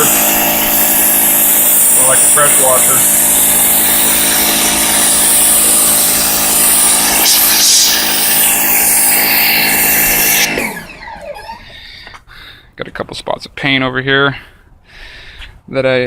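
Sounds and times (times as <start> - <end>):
high-pressure water jet hissing: 0.0 - 11.5
pressure washer motor hum: 0.0 - 12.2.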